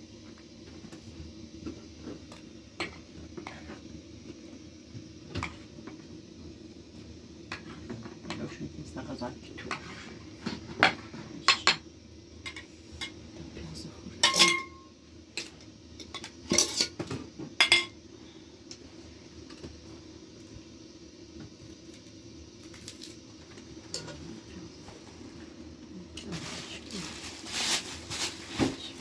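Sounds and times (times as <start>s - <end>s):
metal dishes clinking: 14.2s - 14.8s.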